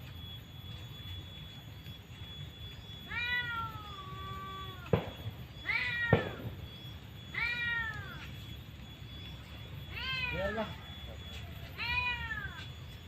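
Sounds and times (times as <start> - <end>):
meow-like animal calls: 3.0 - 4.9, 5.6 - 6.4, 7.3 - 8.3, 9.9 - 10.6, 11.6 - 12.7.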